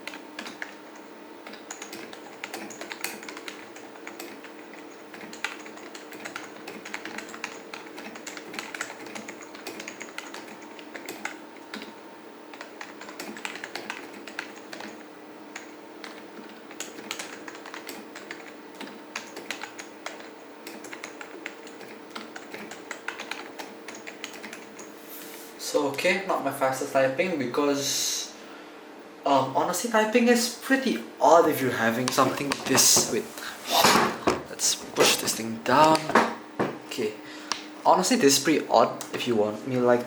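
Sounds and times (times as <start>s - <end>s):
soft keyboard typing: 0.0s - 24.9s.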